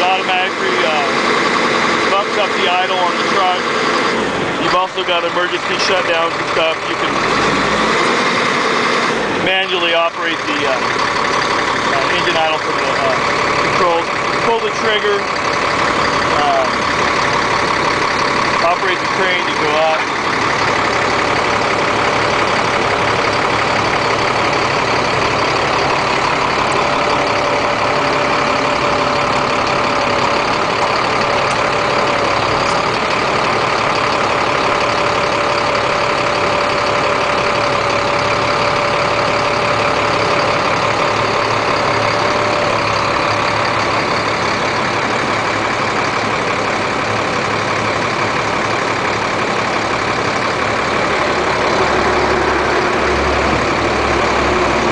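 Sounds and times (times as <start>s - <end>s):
diesel engine idling: 0.0s - 54.9s
steady whine: 0.0s - 54.9s.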